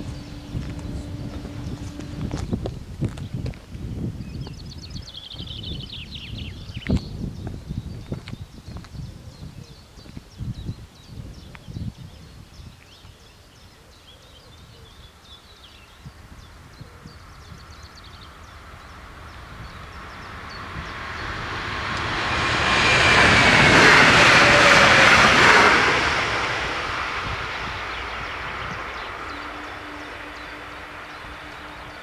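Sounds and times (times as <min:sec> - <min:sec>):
birds chirping faintly: 0:00.0 - 0:03.5, 0:12.8 - 0:32.0
train passing on rails: 0:00.0 - 0:03.8, 0:15.9 - 0:32.0.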